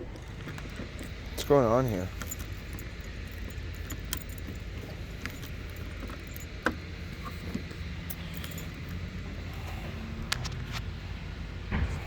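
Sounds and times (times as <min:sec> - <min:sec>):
steady low hum: 0:00.0 - 0:12.0
keys jingling: 0:00.1 - 0:09.7
latch clicking: 0:02.1 - 0:09.0.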